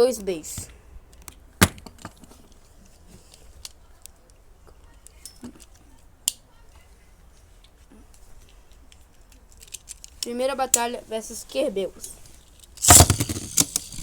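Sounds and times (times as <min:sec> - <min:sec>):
sharp plastic click: 0:12.8 - 0:14.0.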